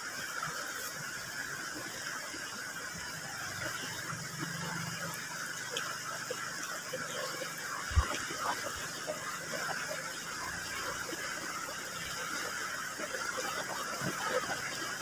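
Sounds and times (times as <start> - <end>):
shallow river rushing: 0.0 - 15.0.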